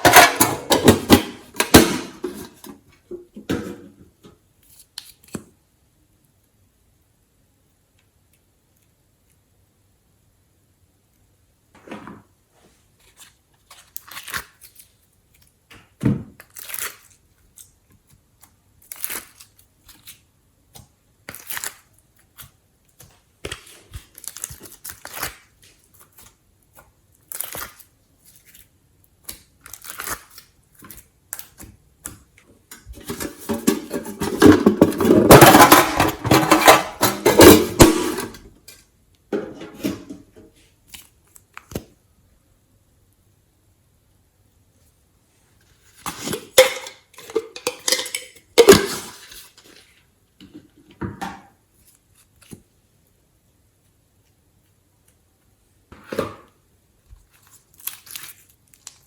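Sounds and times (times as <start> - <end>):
slime crackling and squishing: 57.2 - 59.0.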